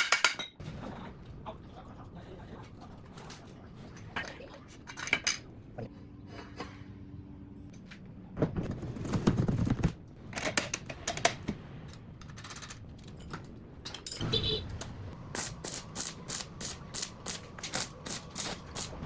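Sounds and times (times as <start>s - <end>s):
metal tools clinking and clattering: 12.2s - 14.3s.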